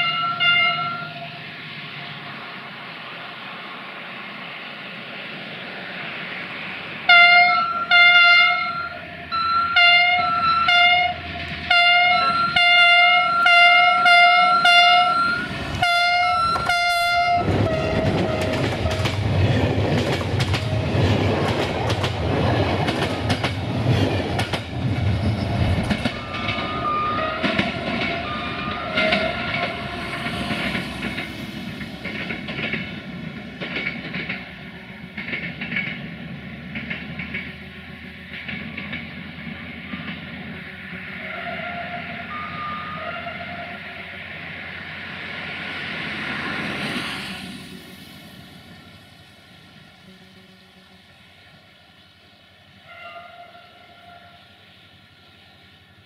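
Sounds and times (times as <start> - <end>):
locomotive horn toots: 0.0 - 1.3, 7.1 - 19.2, 26.1 - 30.2, 41.1 - 44.0, 50.0 - 51.2, 52.8 - 54.5
locomotive engine rumbling: 5.7 - 52.8
wheels clicking over rail joints: 7.2 - 29.8, 31.0 - 41.2.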